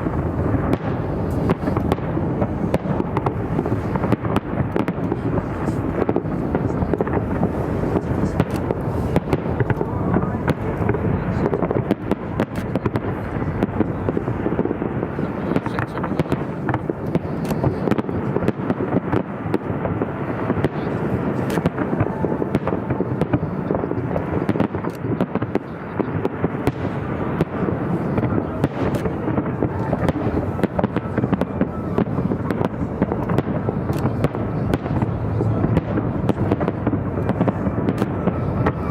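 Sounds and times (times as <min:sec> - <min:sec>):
fireworks bangs and crackles: 0:00.0 - 0:38.9
steady rumble: 0:26.8 - 0:38.9.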